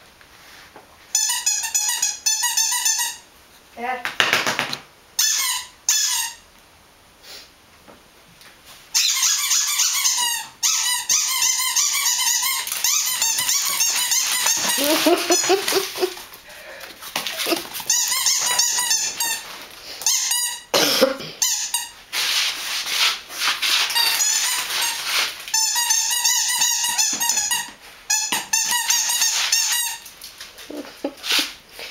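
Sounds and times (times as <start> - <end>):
dog high-pitched squeaks: 1.2 - 3.2, 5.2 - 6.4, 8.9 - 16.1, 17.3 - 20.7, 21.4 - 22.0, 23.8 - 30.1
dog crying: 9.1 - 16.3.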